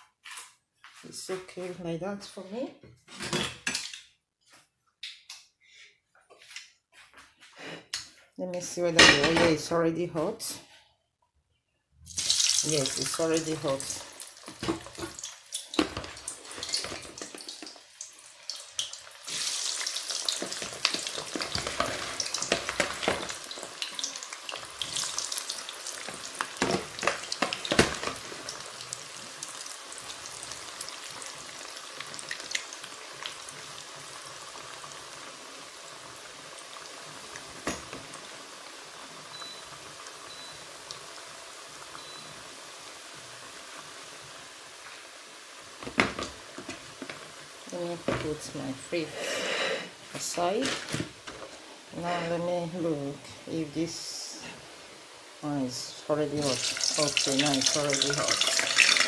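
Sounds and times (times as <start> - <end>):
potato fries sizzling in oil: 12.0 - 59.0.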